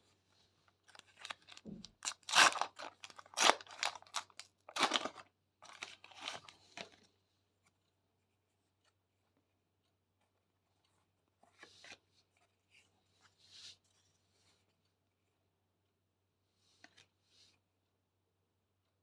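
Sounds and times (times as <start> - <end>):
wrapper crinkling and tearing: 0.9 - 6.5.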